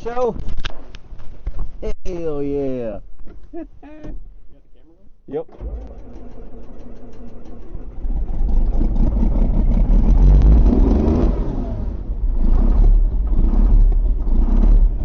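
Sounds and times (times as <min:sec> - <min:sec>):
tractor engine starting and running: 0:05.3 - 0:15.0.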